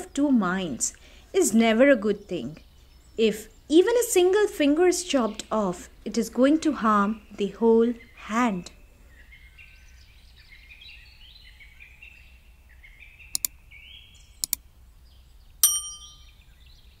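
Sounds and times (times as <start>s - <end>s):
faint high chirping: 8.0s - 17.0s
double clicks: 13.3s - 13.6s, 14.4s - 14.6s
bright ringing ding: 15.6s - 16.4s.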